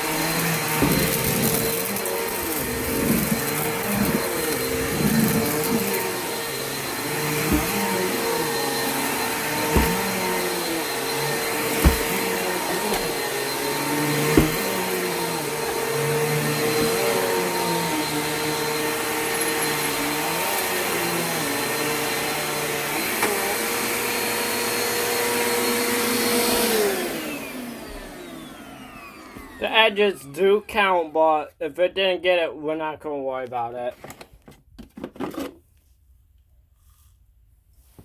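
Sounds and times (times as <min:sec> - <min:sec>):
vacuum cleaner running: 0:00.0 - 0:30.6
short thumps: 0:09.5 - 0:10.5, 0:11.6 - 0:13.3, 0:14.0 - 0:15.8.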